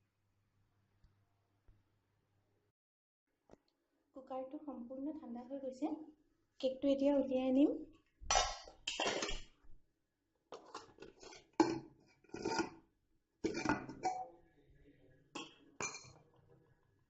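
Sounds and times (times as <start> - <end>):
metal tin clinking and clattering: 12.4 - 12.8, 13.4 - 14.2, 15.4 - 16.2.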